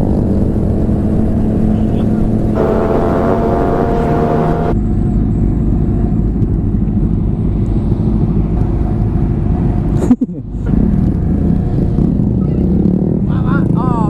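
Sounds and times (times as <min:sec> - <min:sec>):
motorcycle engine running: 0:02.6 - 0:04.8.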